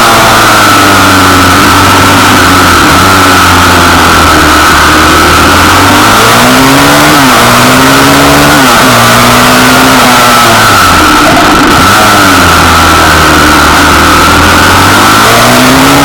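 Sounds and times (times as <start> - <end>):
small motorbike engine revving: 0.0 - 16.0.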